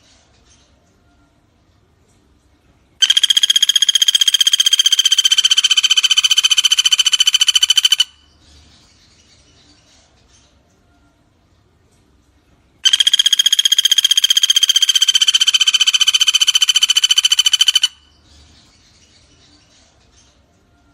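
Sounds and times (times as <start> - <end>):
faint insect chirping: 3.0 - 8.1, 12.8 - 17.9
woodpecker rattling call: 3.0 - 8.4, 12.8 - 18.2.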